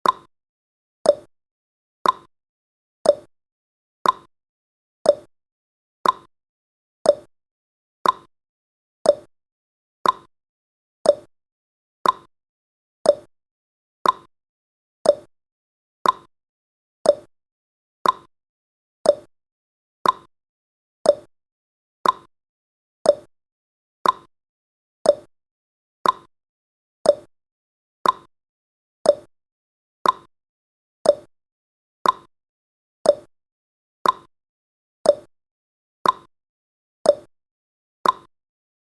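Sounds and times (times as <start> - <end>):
timer ticking: 0.0 - 0.3, 1.1 - 1.3, 2.0 - 2.3, 3.0 - 3.3, 4.0 - 4.3, 5.0 - 5.3, 6.0 - 6.3, 7.0 - 7.3, 8.0 - 8.3, 9.0 - 9.3, 10.0 - 10.3, 11.0 - 11.3, 12.0 - 12.3, 13.0 - 13.3, 14.0 - 14.3, 15.0 - 15.3, 16.0 - 16.3, 17.0 - 17.3, 18.0 - 18.3, 19.0 - 19.3, 20.0 - 20.3, 21.0 - 21.3, 22.0 - 22.3, 23.0 - 23.3, 24.0 - 24.3, 25.0 - 25.3, 26.0 - 26.3, 27.0 - 27.3, 28.0 - 28.3, 29.0 - 29.3, 30.0 - 30.3, 31.0 - 31.3, 32.0 - 32.3, 33.0 - 33.3, 34.0 - 34.3, 35.0 - 35.3, 36.0 - 36.3, 37.1 - 37.3, 38.0 - 38.3.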